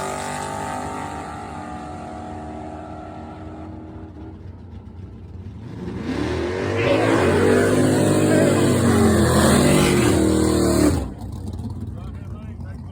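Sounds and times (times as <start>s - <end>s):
drag car engine at full throttle: 0.0s - 12.9s
low engine rumble: 6.8s - 12.9s.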